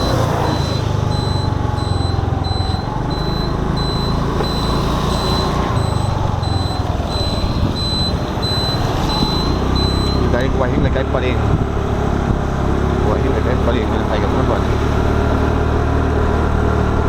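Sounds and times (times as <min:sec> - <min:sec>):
high electronic beep: 0:00.0 - 0:10.5
scooter engine and road rumble: 0:00.0 - 0:17.0.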